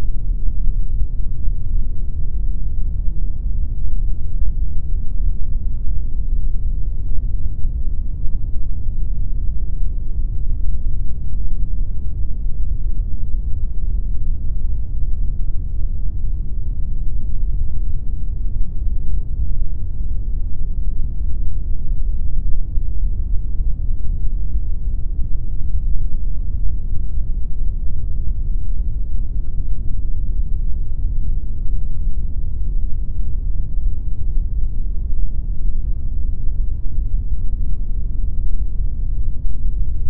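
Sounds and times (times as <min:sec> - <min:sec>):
deep even pink noise hiss: 0:00.0 - 0:40.0.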